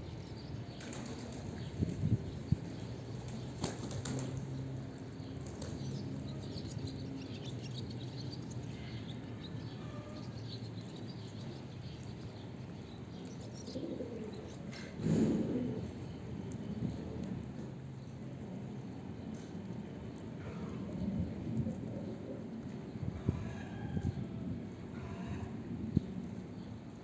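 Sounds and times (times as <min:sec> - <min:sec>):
pigeon wings flapping: 0:00.8 - 0:01.6, 0:03.2 - 0:04.7
pigeons cooing: 0:13.7 - 0:16.2.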